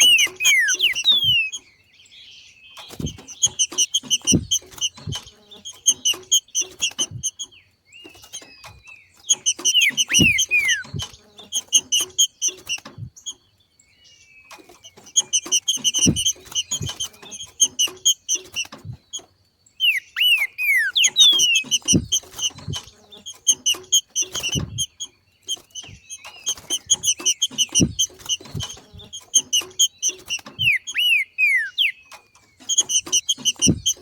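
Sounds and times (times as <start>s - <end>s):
thin descending whistles: 0.0s - 1.6s
bird chatter of sharp high notes: 0.0s - 1.9s, 2.7s - 13.4s, 14.4s - 34.0s
soft low thumps: 2.9s - 7.4s, 8.7s - 11.3s, 12.9s - 13.2s, 15.3s - 17.8s, 18.8s - 19.2s, 21.4s - 23.7s, 26.8s - 29.5s, 33.0s - 34.0s.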